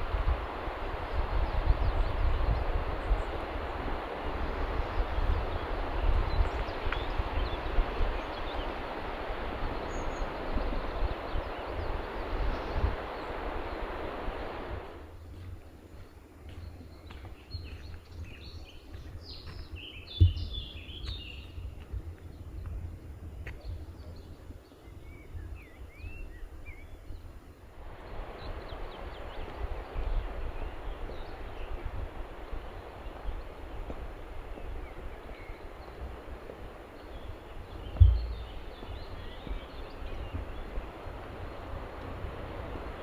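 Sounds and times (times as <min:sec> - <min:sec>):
steady rushing noise: 0:00.0 - 0:15.0, 0:27.8 - 0:43.0
small birds chirping: 0:00.1 - 0:14.8, 0:15.9 - 0:22.7, 0:27.9 - 0:43.0
sharp thumps: 0:38.0 - 0:39.0
low rumble: 0:38.0 - 0:39.1.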